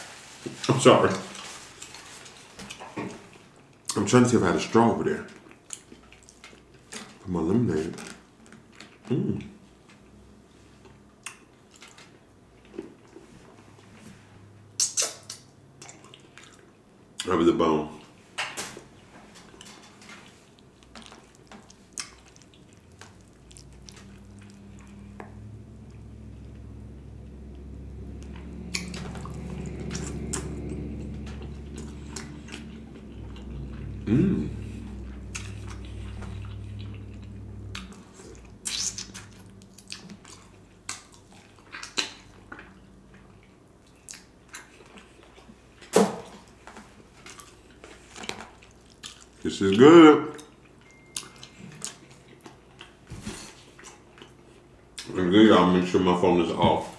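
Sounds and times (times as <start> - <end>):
low steady hum: 0.0 - 56.9
wet chewing: 5.2 - 7.2, 14.8 - 17.3, 19.4 - 49.5, 50.3 - 55.2
wet mouth smacks and sucking: 14.8 - 16.5, 35.0 - 40.2
low hum: 20.6 - 43.8.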